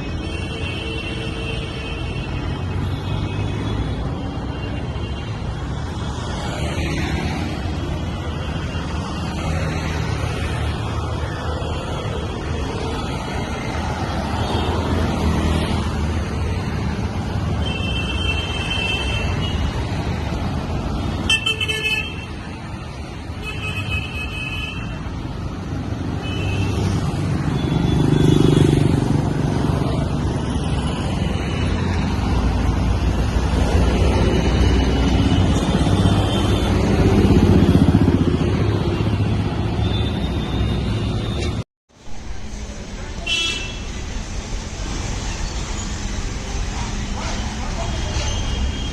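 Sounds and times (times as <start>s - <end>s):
vehicle engines running: 26.8s - 39.8s, 42.0s - 48.9s
car horns honking: 43.2s - 43.9s.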